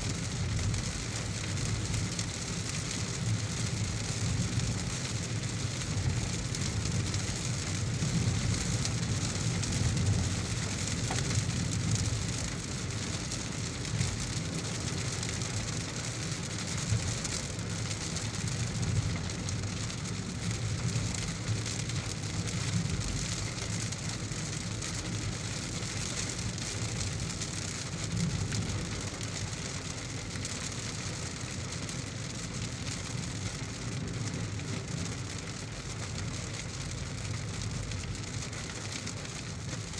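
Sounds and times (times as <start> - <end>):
heavy rain on a car: 0.0 - 39.9.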